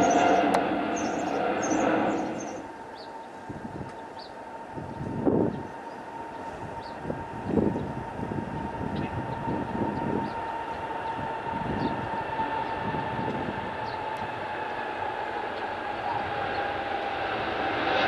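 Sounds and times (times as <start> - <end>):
low rumble: 0.0 - 2.7
jet engines whining: 0.0 - 18.0.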